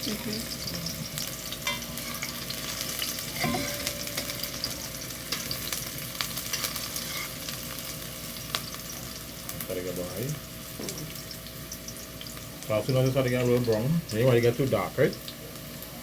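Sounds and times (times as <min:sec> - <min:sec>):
vegetables sizzling in hot oil: 0:00.0 - 0:16.0
spoon stirring in pot: 0:00.5 - 0:05.7, 0:06.5 - 0:07.5.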